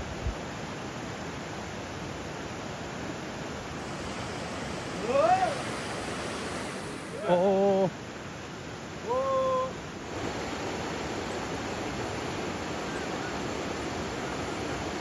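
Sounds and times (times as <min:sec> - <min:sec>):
river water rushing: 0:00.0 - 0:15.0
man shouting: 0:05.0 - 0:05.6, 0:09.1 - 0:09.8.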